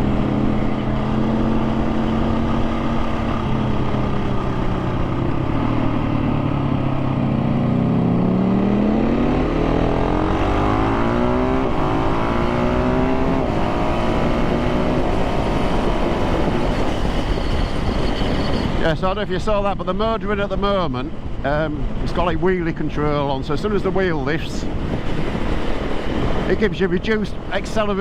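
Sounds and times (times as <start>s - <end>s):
motorcycle engine accelerating: 0.0s - 19.0s
wind rush: 0.0s - 28.0s.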